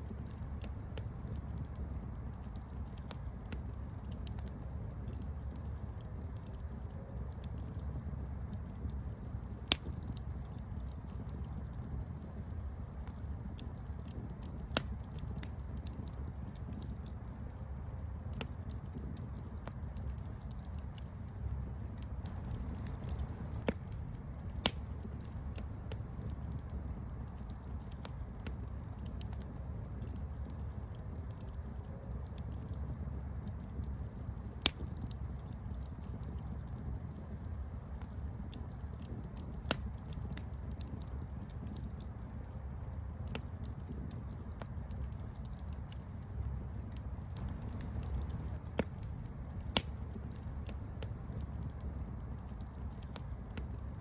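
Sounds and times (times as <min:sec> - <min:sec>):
campfire crackling: 0:00.0 - 0:54.0
loud fire pops: 0:17.8 - 0:30.6, 0:32.3 - 0:54.0.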